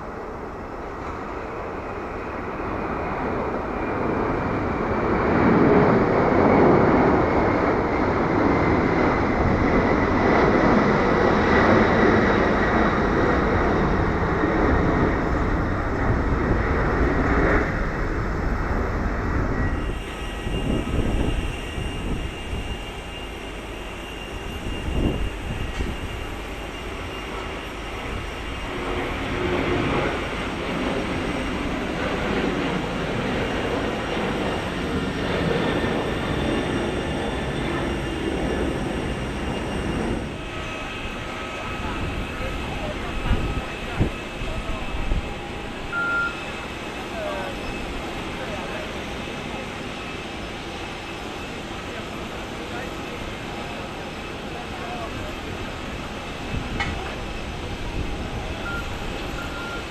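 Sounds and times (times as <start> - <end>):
jet engines roaring at takeoff: 0.0 - 59.9
thin high engine whine: 0.0 - 59.9.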